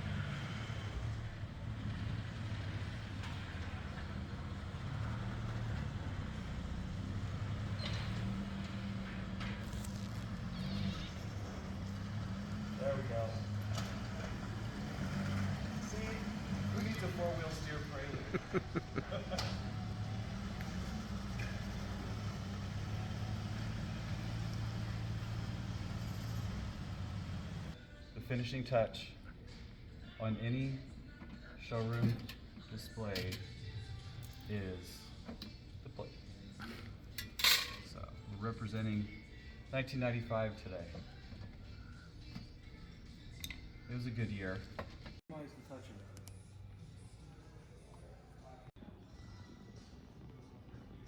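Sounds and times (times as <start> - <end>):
car engine running at low speed: 0.0 - 27.8.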